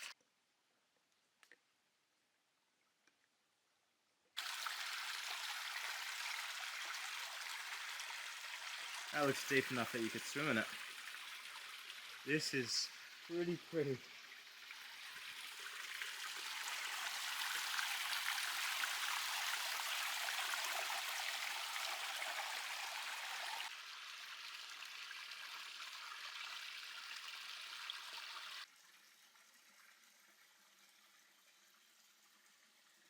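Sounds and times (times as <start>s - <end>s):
stream water splashing over cascade: 4.4s - 28.7s.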